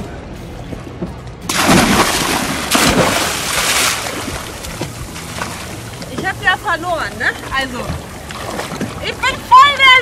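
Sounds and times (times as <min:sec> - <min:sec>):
person splashing into water: 0:01.5 - 0:05.8
water sloshing: 0:01.5 - 0:10.0.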